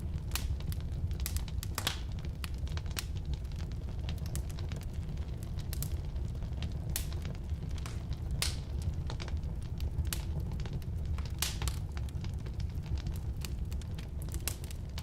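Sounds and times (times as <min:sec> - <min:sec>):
fire low rumble: 0:00.0 - 0:15.0
firewood crackles and pops: 0:00.0 - 0:15.0.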